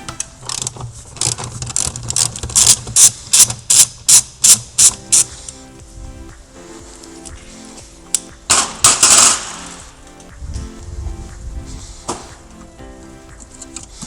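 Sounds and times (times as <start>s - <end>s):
background music: 0.0s - 1.2s, 4.4s - 14.0s.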